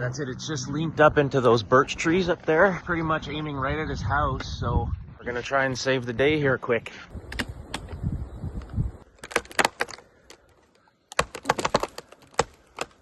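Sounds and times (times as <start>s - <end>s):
wood fibres cracking and popping: 7.1s - 8.0s, 8.6s - 13.0s.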